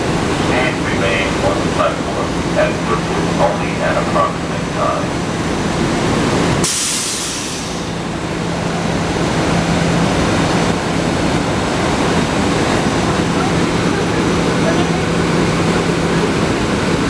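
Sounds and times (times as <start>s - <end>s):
train equipment humming: 0.0s - 17.0s
air release hiss: 6.6s - 8.0s.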